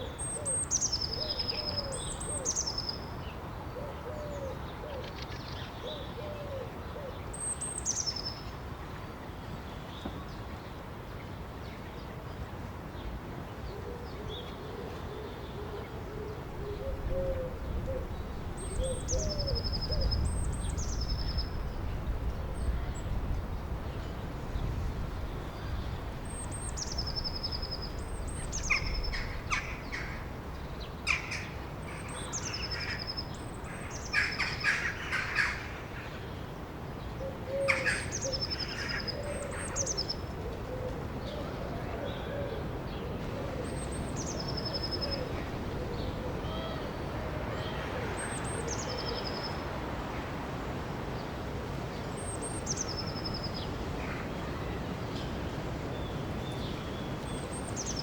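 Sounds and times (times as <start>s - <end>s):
harsh bird calls: 25.2s - 30.4s, 31.0s - 36.3s.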